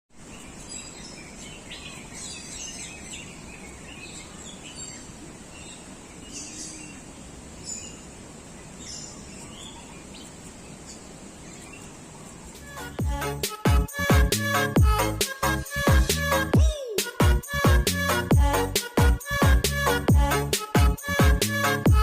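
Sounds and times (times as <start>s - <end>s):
steady background noise: 0.2s - 13.2s
birds chirping and calling: 0.2s - 22.0s.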